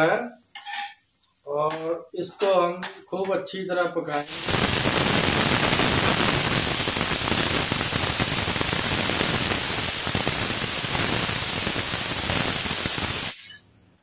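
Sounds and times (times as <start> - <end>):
onions frying in oil: 4.3 - 13.5.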